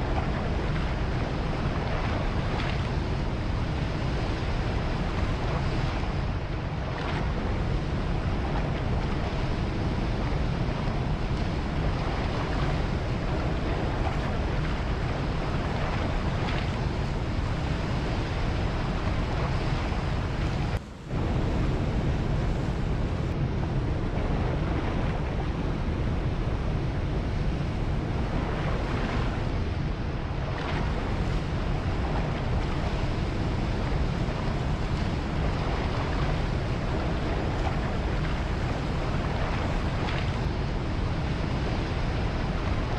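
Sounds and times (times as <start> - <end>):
ocean waves: 0.0 - 42.9
wind: 0.0 - 42.9.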